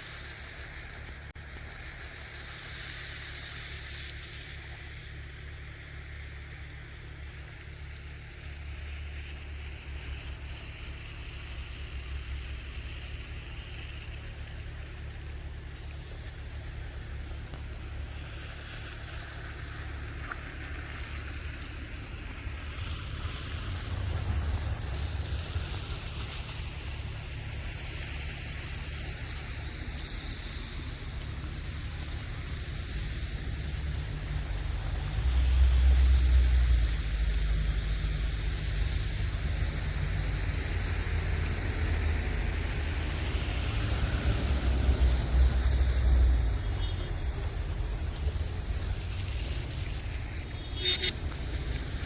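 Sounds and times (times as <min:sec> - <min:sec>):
storm wind buffeting microphone: 0:21.9 - 0:27.2.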